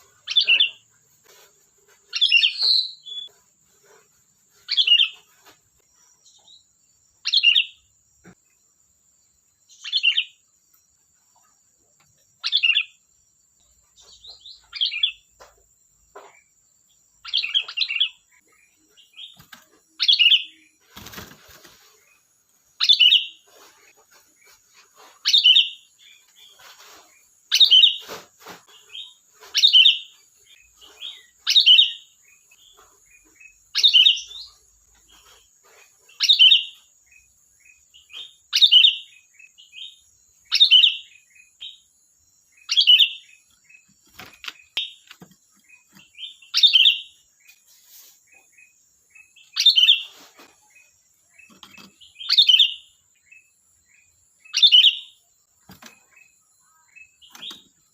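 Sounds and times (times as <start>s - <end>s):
soft bird chirps: 0.0s - 57.9s
bulbul singing: 2.1s - 3.4s, 28.7s - 47.6s, 48.3s - 57.9s.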